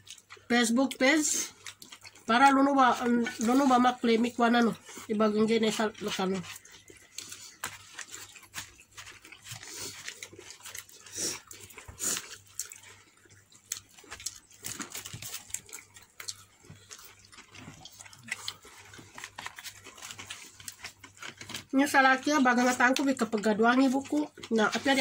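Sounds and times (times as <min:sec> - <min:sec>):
wet chewing and lip smacks: 0:00.0 - 0:03.8, 0:05.8 - 0:21.7.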